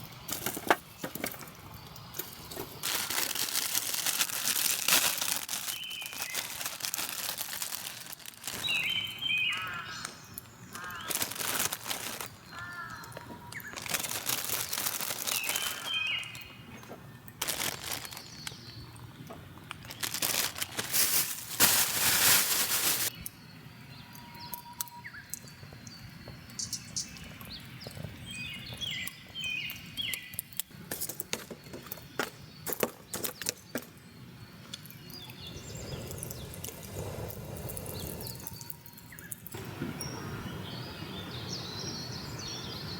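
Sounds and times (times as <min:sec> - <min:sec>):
rustling and crinkling: 0:00.2 - 0:09.0, 0:10.7 - 0:23.3
small bird chirping: 0:05.6 - 0:06.7.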